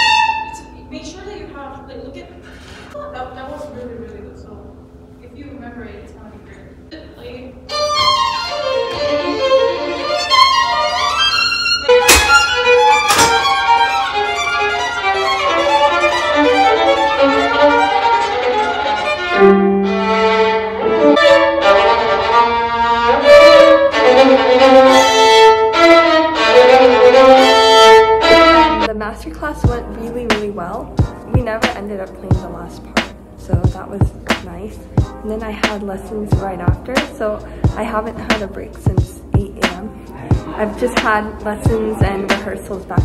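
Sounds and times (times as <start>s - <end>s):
violin melody: 0.0s - 0.9s, 7.6s - 29.1s, 34.8s - 43.0s.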